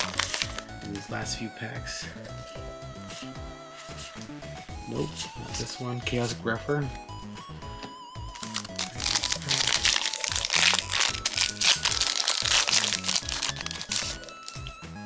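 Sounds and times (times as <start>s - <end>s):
foil pack crinkling and tearing: 0.0s - 0.9s, 8.3s - 14.8s
background music: 0.0s - 15.0s.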